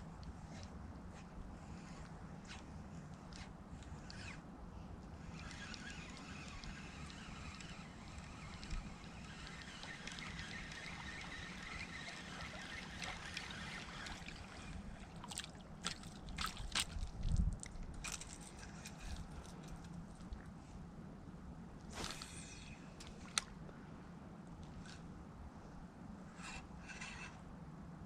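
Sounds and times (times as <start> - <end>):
water sloshing and trickling: 5.2 - 20.5, 21.9 - 23.6.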